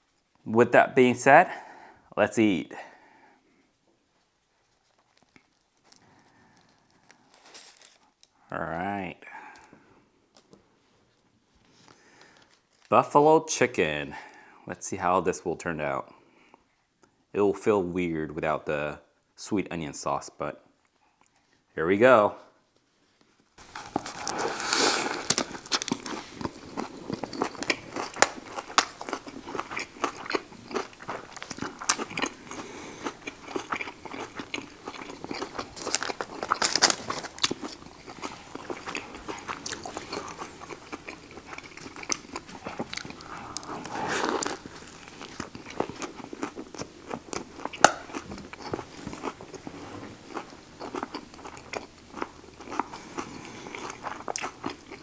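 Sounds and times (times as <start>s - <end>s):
crunching and wet chewing: 4.7s - 8.4s, 23.6s - 55.0s
biting into crisp vegetables: 23.6s - 55.0s.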